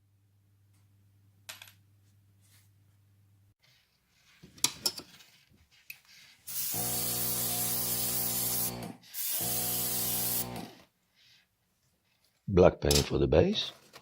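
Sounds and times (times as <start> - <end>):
airbrush spraying hiss: 6.5 - 10.6
small compressor humming: 6.5 - 10.8.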